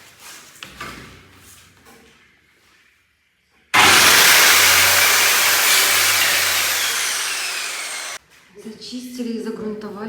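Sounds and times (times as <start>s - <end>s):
motor-driven machine running: 3.8s - 8.2s.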